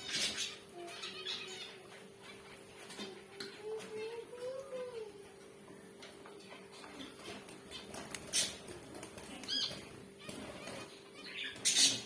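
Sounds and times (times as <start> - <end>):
wings fluttering: 6.9 - 12.0
finches calling: 9.5 - 12.0.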